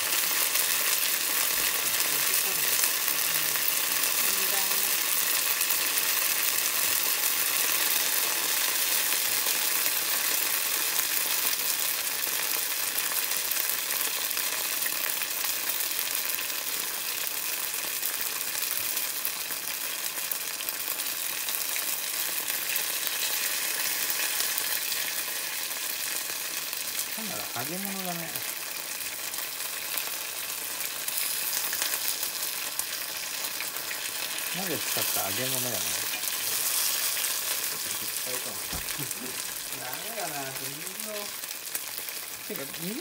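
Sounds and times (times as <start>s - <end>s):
tempura sizzling in oil: 0.0s - 43.0s
chopsticks stirring in oil: 30.8s - 41.4s.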